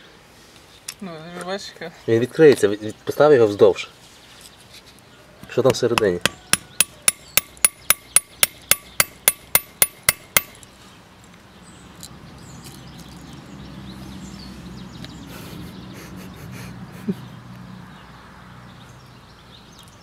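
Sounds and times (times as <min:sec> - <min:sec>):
hammer tapping on metal: 0:05.6 - 0:10.6.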